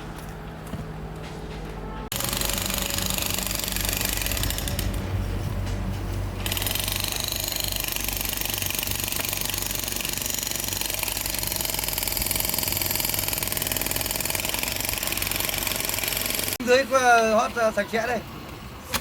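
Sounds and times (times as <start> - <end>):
machine running with fast pulse: 2.1 - 5.0.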